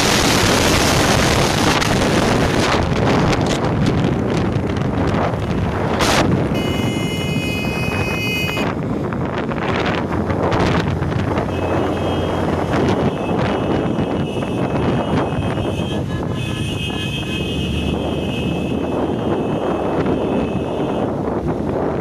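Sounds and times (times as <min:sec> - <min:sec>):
moving vehicle rumble: 0:00.0 - 0:22.0
wind rushing on microphone: 0:00.0 - 0:22.0
high-pitched horn-like tone: 0:06.5 - 0:08.7, 0:11.5 - 0:21.1.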